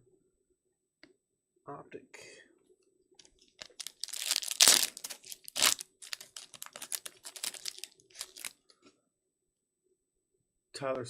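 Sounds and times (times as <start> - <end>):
small crackles: 3.2 - 8.8
card pack wrapper crinkling: 3.4 - 8.6.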